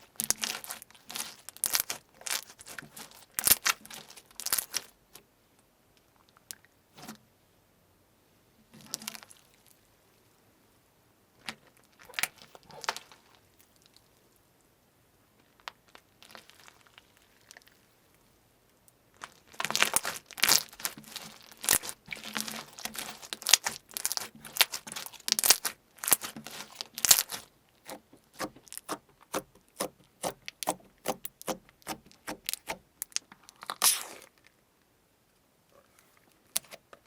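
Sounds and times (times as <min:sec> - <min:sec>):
slime crackling and tearing: 0:00.0 - 0:04.9, 0:19.3 - 0:34.3.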